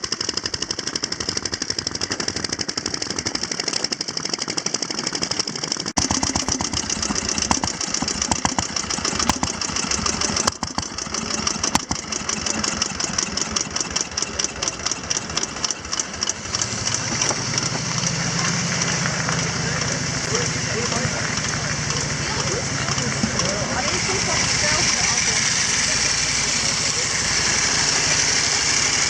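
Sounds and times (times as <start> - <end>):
motorcycle engine running: 0.0 - 29.0
deeper steady engine note: 6.0 - 29.0.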